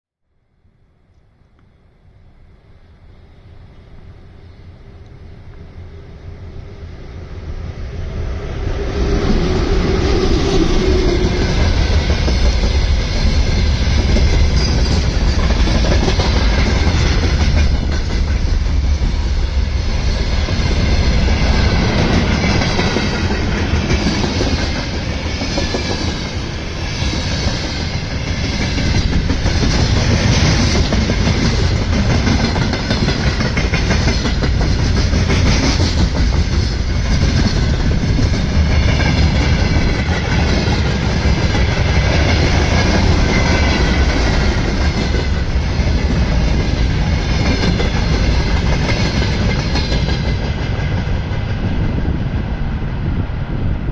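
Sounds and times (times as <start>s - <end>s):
freight train wheels clattering: 9.6s - 52.3s.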